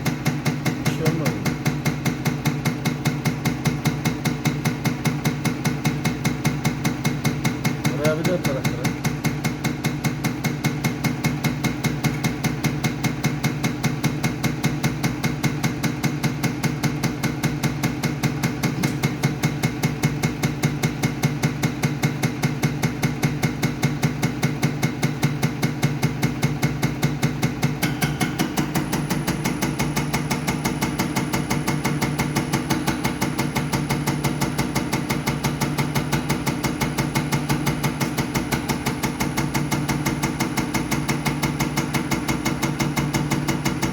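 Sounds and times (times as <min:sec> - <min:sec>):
test bench hum: 0:18.7 - 0:20.0, 0:27.8 - 0:43.9
rapid even knocking: 0:27.8 - 0:43.9.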